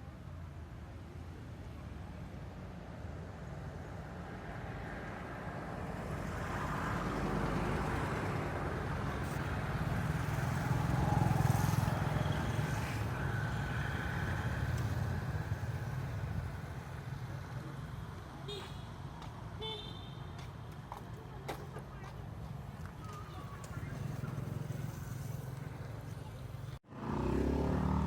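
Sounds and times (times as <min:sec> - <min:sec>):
road noise: 0:00.0 - 0:28.0
motor vehicle running: 0:20.7 - 0:28.0.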